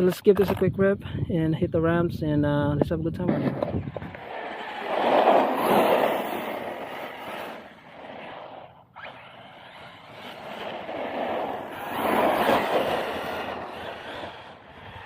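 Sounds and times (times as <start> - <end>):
rc truck motor and tyres: 3.4 - 15.0.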